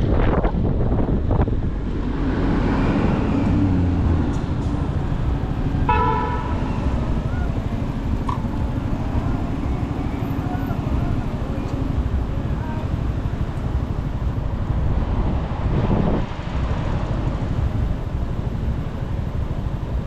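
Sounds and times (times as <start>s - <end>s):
motorcycle engine and road noise: 0.0s - 20.0s
vehicle horn honk: 5.8s - 7.5s.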